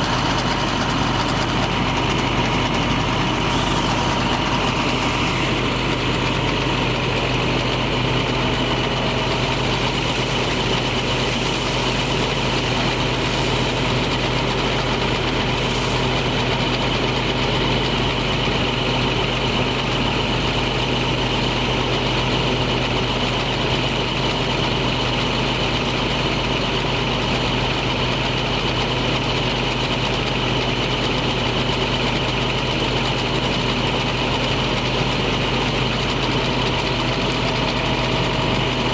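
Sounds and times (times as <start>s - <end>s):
high whine: 0.0s - 17.8s
diesel truck engine idling: 0.0s - 38.9s.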